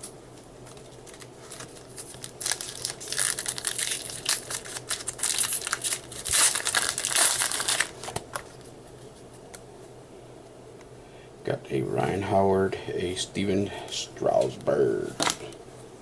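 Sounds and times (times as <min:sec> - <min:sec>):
foil wrapper tearing and crinkling: 0:00.7 - 0:08.6.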